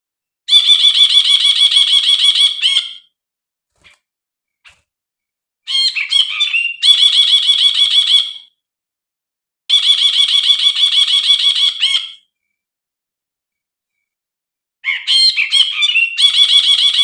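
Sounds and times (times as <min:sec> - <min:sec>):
bird calling and chattering: 0:00.5 - 0:03.0, 0:05.7 - 0:08.4, 0:09.7 - 0:12.3, 0:14.8 - 0:17.0.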